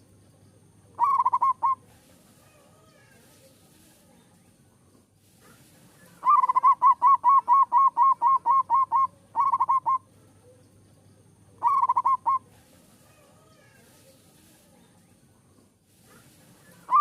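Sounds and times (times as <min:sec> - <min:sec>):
dove cooing: 0:01.0 - 0:01.9, 0:06.1 - 0:10.1, 0:11.6 - 0:12.5, 0:16.7 - 0:17.0.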